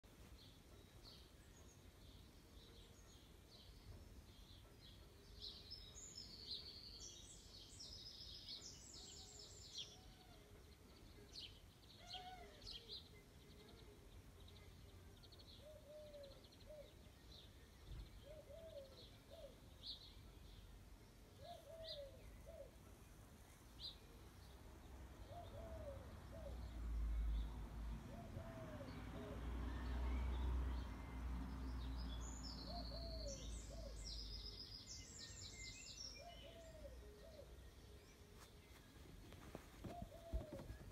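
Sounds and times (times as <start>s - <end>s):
faint high birdsong chirping: 0.0s - 40.9s.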